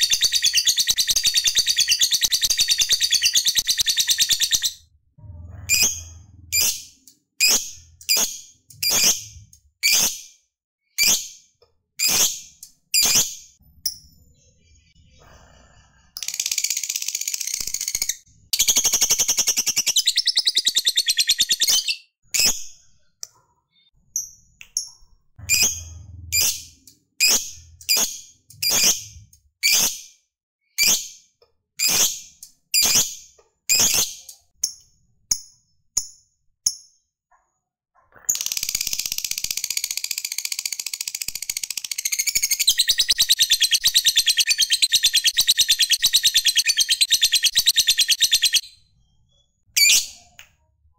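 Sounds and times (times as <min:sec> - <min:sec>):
lovebird chattering trill: 0:00.0 - 0:04.8, 0:41.4 - 0:48.6.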